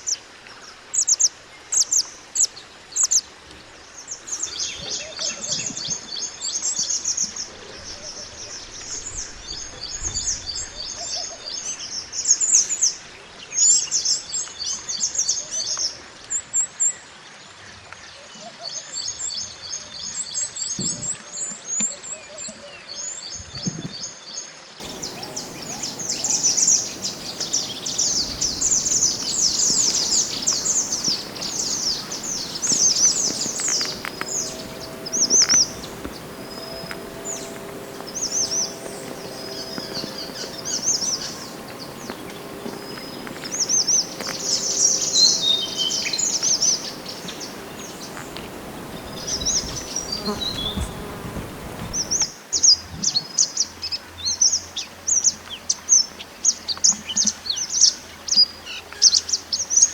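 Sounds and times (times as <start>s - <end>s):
songbird chirping trills: 24.8s - 52.3s.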